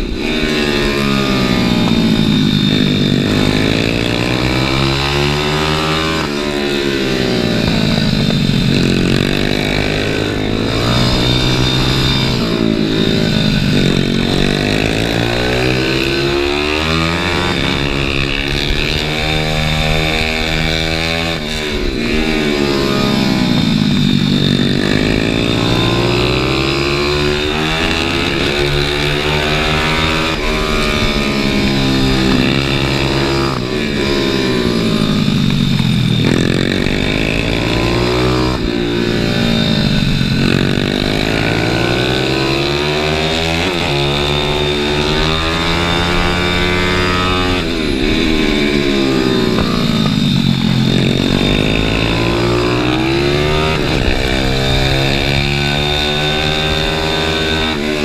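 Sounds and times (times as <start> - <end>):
motorbike engine revving: 0.0 - 58.0.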